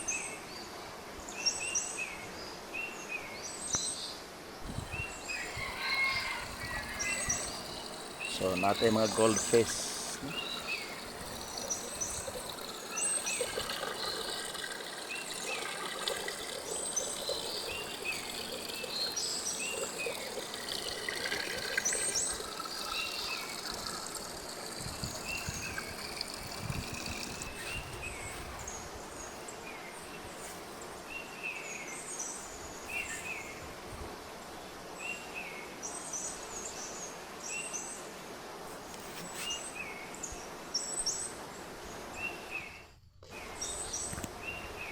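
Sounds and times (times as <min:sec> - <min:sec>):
outdoor background hiss: 0:00.0 - 0:44.9
small birds chirping: 0:03.6 - 0:33.6.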